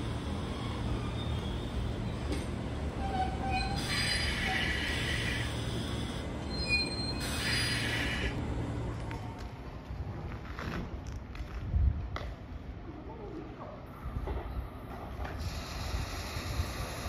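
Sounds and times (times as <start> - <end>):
train wheels squealing: 0.0 - 8.4
train rumbling on rails: 0.0 - 12.8, 13.8 - 17.0.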